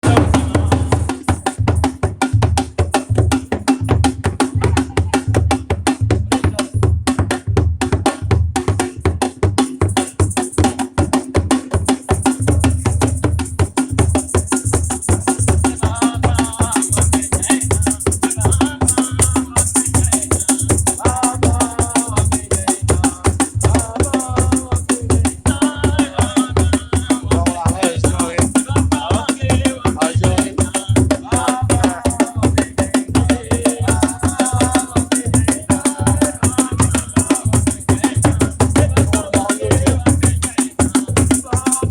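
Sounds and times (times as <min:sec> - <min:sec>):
voices singing: 0:00.0 - 0:01.5, 0:06.2 - 0:06.8, 0:15.3 - 0:41.9
fast drum and percussion beat: 0:00.0 - 0:41.9.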